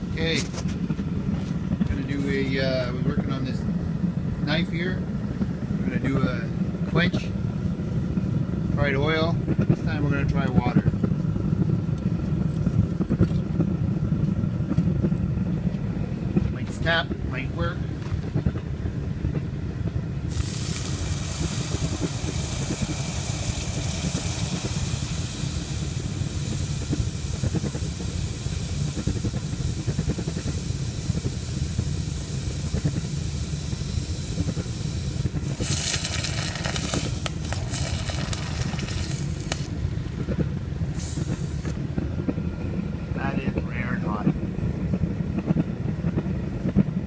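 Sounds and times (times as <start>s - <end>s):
steady low rumble: 0.0s - 47.0s
hot blade sizzling in water: 20.3s - 28.0s, 35.5s - 39.7s.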